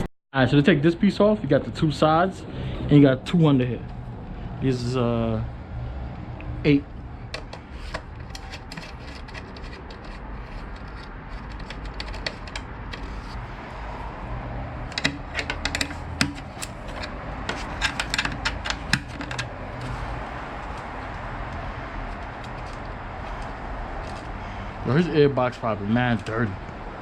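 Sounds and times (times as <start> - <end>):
socket ratchet clicking: 14.9 - 19.5.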